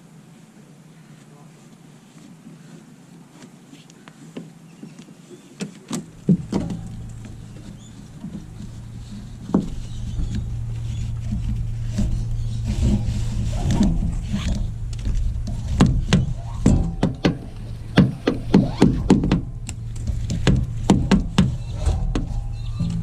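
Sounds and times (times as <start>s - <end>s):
knocks and clatter: 5.9s - 23.0s
engine running: 6.1s - 23.0s.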